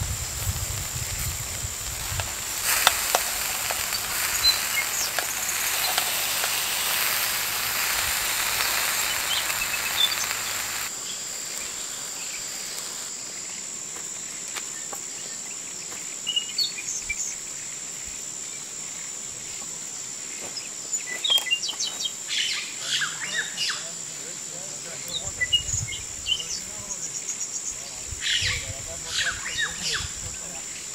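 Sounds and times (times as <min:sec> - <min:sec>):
food sizzling over a fire: 0:00.0 - 0:15.1, 0:23.2 - 0:30.9
high insect drone: 0:00.0 - 0:30.9
bird chirps: 0:03.4 - 0:10.9.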